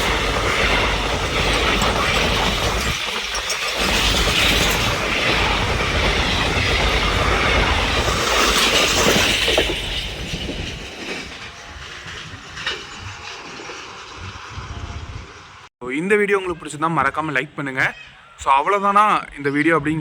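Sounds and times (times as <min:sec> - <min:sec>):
wheel clacks: 0:00.0 - 0:15.6
train rumbling and clattering on rails: 0:00.0 - 0:15.7.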